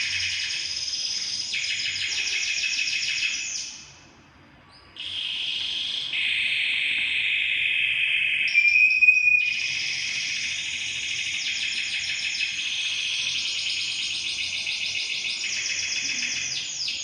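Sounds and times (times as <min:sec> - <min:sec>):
songbird trills and chatter: 0:09.4 - 0:17.0.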